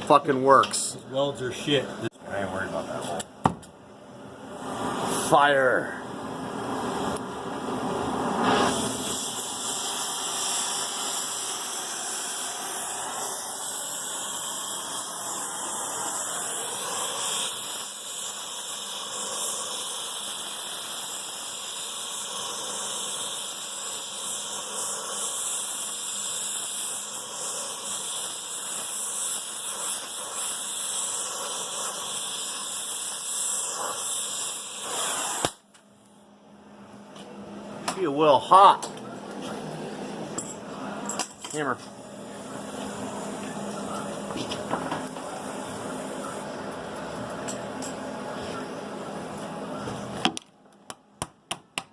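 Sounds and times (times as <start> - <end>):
gas torch flame hissing: 4.5 - 35.7, 41.5 - 50.4.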